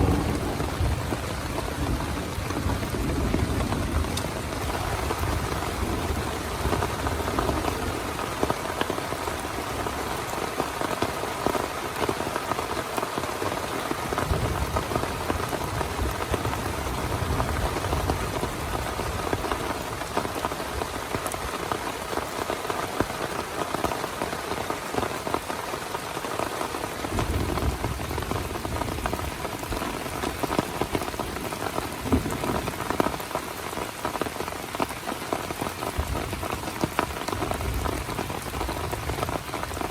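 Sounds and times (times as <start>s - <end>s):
low rumble: 0.0s - 3.0s
heavy rain falling: 0.0s - 39.9s.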